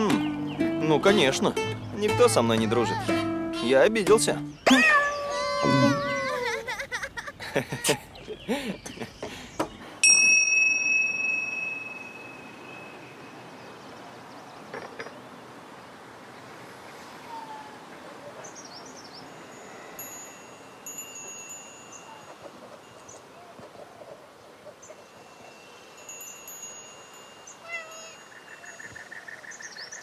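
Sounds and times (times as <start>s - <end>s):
metal chime ringing: 10.0s - 13.8s, 19.3s - 23.2s, 25.1s - 28.7s.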